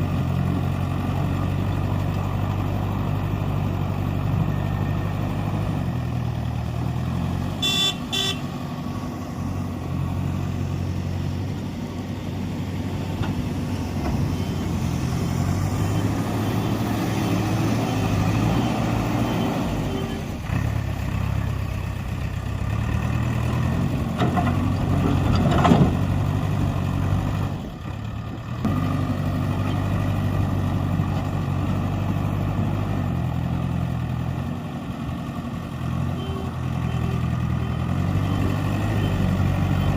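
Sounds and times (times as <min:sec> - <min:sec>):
heavy diesel engines working: 0:00.0 - 0:39.9
horn toot: 0:07.6 - 0:08.5.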